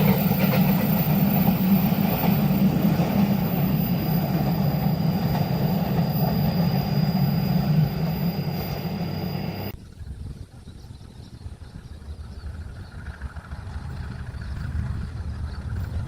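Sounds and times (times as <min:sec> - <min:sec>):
high-pitched squeal: 0:00.0 - 0:09.7
train wheels rumbling on rail: 0:00.0 - 0:16.0.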